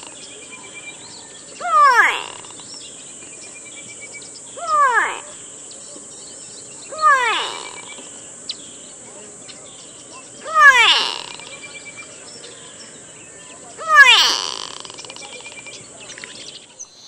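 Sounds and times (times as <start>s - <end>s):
small birds trilling: 0.0s - 17.0s
bird drawn-out falling call: 6.9s - 8.1s, 10.4s - 11.6s, 13.8s - 15.4s.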